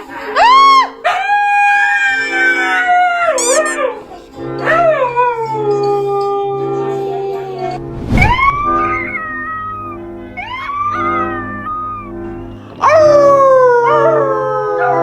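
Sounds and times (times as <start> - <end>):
dog howling: 8.9 - 12.2, 12.8 - 15.0.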